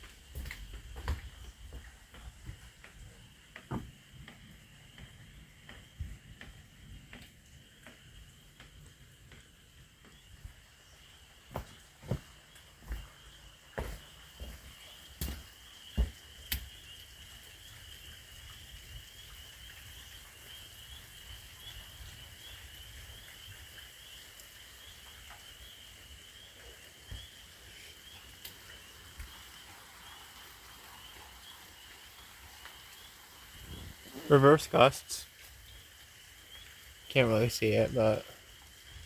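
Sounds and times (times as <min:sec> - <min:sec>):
frogs trilling: 0:00.1 - 0:39.0.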